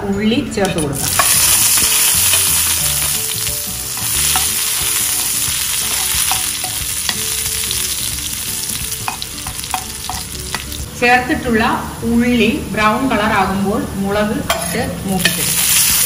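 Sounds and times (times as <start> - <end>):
steel spoon stirring: 0.6 - 10.8, 14.5 - 16.0
shallots sizzling in hot oil: 0.7 - 13.6, 14.5 - 16.0.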